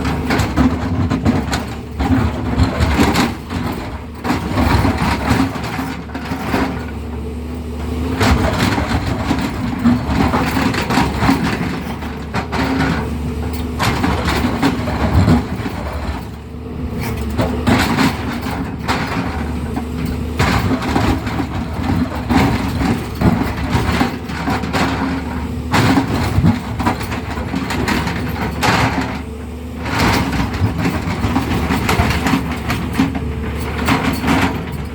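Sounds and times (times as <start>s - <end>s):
excavator diesel engine running: 0.0s - 34.9s
bucket knocking and scraping road: 8.1s - 34.9s.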